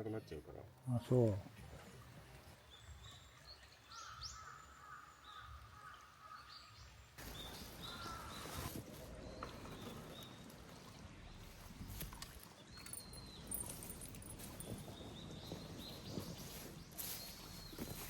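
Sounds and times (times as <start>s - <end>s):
faint outdoor background noise: 0.0s - 18.0s
small birds chirping: 7.2s - 18.0s.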